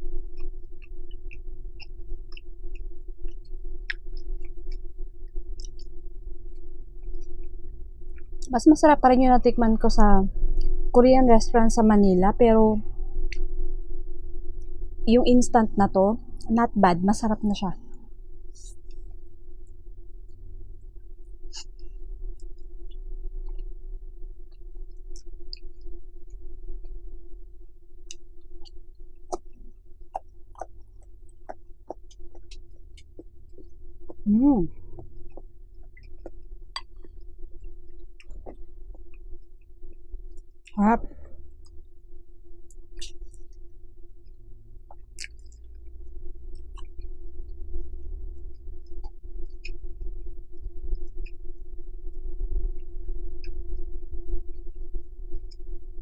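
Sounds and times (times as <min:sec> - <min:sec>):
steady low hum: 0:00.0 - 0:56.0
chewing with wet mouth clicks: 0:00.3 - 0:08.5, 0:18.6 - 0:19.1, 0:24.5 - 0:25.9, 0:28.0 - 0:41.9, 0:42.7 - 0:43.6, 0:44.2 - 0:52.2.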